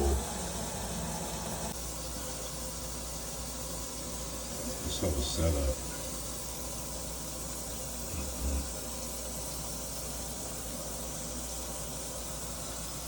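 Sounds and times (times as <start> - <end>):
water hissing through drain pipe: 0.0 - 13.0.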